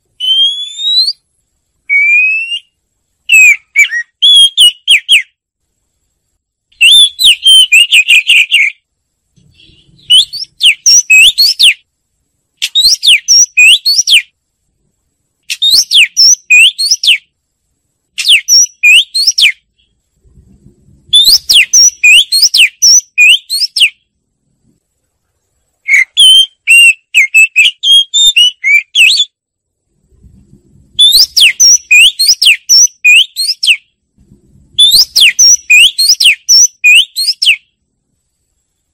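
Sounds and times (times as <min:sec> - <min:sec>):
bird singing whistled phrases: 0:00.2 - 0:01.2, 0:01.8 - 0:05.4, 0:06.8 - 0:08.8, 0:09.5 - 0:11.8, 0:12.6 - 0:14.3, 0:15.5 - 0:17.3, 0:18.2 - 0:19.9, 0:21.1 - 0:24.0, 0:25.8 - 0:29.4, 0:31.0 - 0:33.8, 0:34.8 - 0:37.7.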